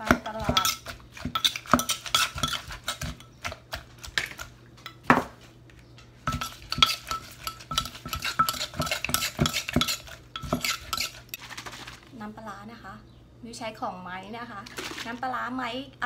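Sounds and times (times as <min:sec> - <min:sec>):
metal spoon scraping and clinking: 0:00.5 - 0:03.3, 0:06.3 - 0:11.4.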